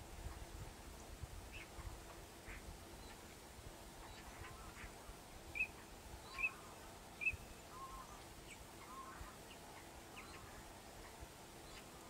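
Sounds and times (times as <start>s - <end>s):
low background hiss: 0.0s - 12.0s
faint bird chirps and sweeps: 4.0s - 12.0s.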